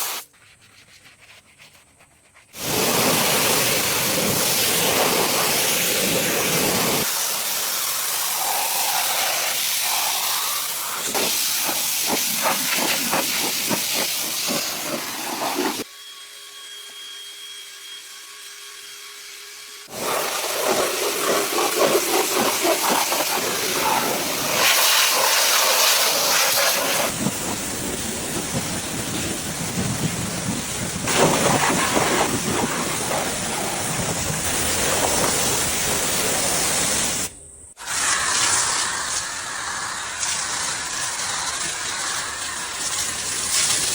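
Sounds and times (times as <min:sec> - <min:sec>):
steam cleaner hissing: 0:00.0 - 0:00.2, 0:02.6 - 0:15.9, 0:19.9 - 0:43.9
rapid scratchy scrubbing strokes: 0:00.0 - 0:07.1, 0:11.0 - 0:15.9, 0:19.9 - 0:27.2.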